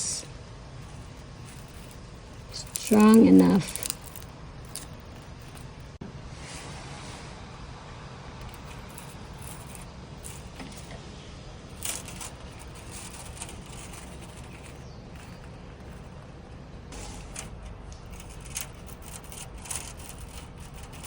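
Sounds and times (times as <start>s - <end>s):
low background rumble: 0.0s - 6.0s.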